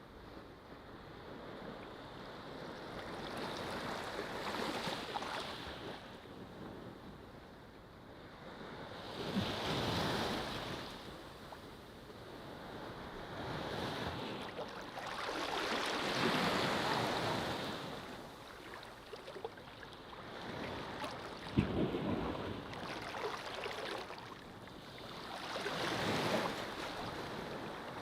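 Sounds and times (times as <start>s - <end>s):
ocean waves washing onto beach: 9.0s - 28.0s.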